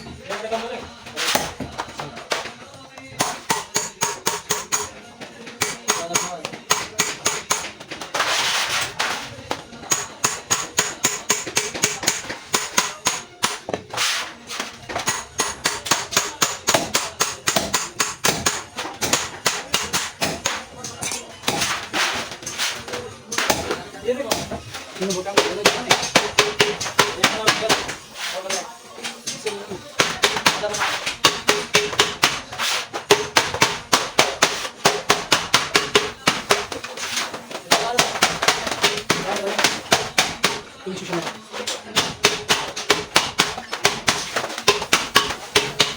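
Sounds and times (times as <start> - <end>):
small hammer tapping metal: 3.1 - 5.0, 5.6 - 8.2, 9.5 - 13.8, 14.9 - 21.8, 29.3 - 40.6, 41.2 - 45.9
hammer blows ringing: 3.2 - 7.9.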